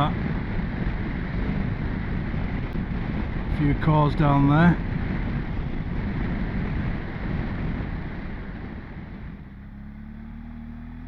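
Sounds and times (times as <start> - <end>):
motorcycle engine: 0.0 - 11.0
wind rushing over microphone: 0.0 - 11.0.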